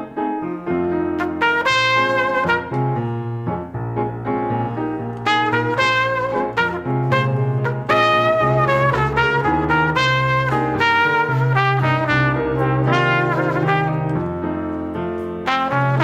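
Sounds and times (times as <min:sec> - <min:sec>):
brass horns melody: 0:01.2 - 0:03.3, 0:05.2 - 0:14.6, 0:15.4 - 0:16.0
bass line: 0:01.2 - 0:14.4.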